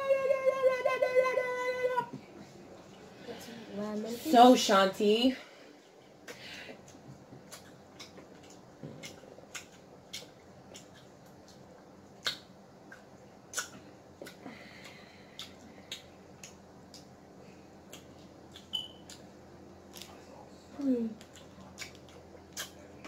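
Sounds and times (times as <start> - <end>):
wet lip-smacking and chewing: 6.8 - 17.2, 17.9 - 19.3, 19.9 - 20.2, 21.2 - 23.0.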